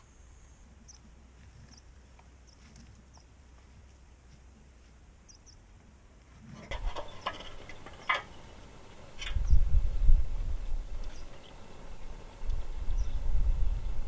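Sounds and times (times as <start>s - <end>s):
small birds chirping: 0.0s - 4.3s, 5.2s - 5.7s, 6.7s - 14.0s
sharp clicks and knocks: 6.7s - 9.5s.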